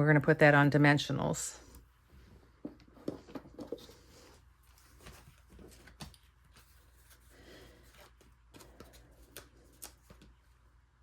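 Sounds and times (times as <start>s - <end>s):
low room hum: 0.0s - 11.0s
paper and card handling: 3.5s - 10.6s.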